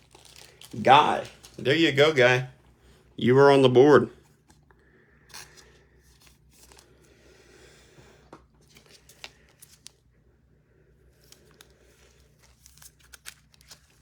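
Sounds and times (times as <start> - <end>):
trading cards packaging rustling: 0.0 - 2.5, 8.6 - 10.0, 11.2 - 14.0.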